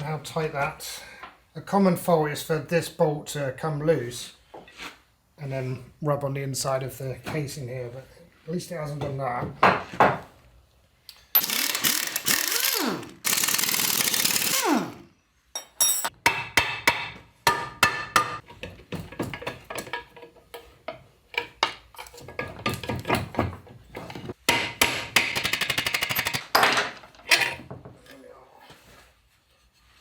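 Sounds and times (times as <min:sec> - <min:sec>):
whirring power tool: 0:11.4 - 0:15.1.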